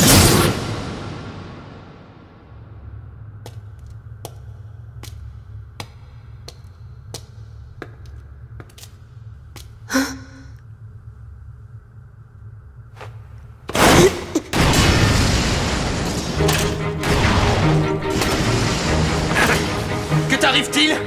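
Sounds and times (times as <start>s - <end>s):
loud burst: 0.0s - 2.6s, 13.8s - 20.3s.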